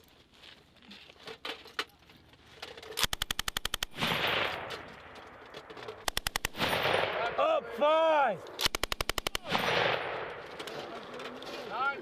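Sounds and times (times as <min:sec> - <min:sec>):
machine gun burst: 0:03.0 - 0:04.8, 0:06.0 - 0:07.2, 0:08.6 - 0:10.2.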